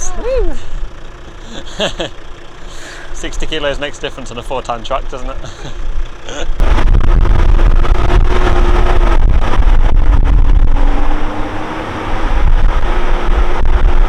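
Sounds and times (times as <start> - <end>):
truck engine droning: 0.0 - 14.0
wind buffeting microphone: 6.6 - 14.0.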